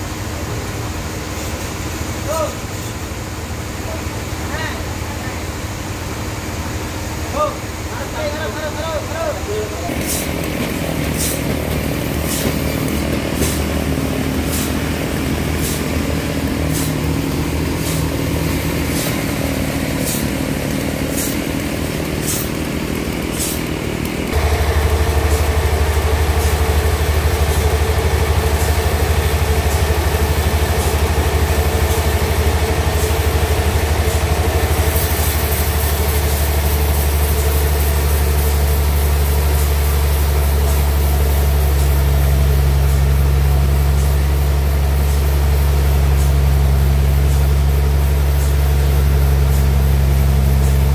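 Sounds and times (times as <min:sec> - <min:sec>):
sawmill engine running: 0:00.0 - 0:50.9
deep even hum: 0:12.6 - 0:36.8.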